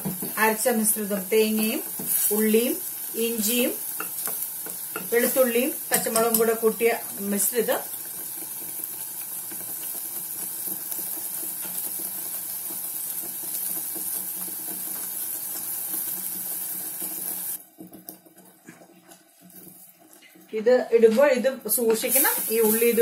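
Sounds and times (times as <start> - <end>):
paste sizzling in hot oil: 0.0 - 17.6, 21.6 - 23.0.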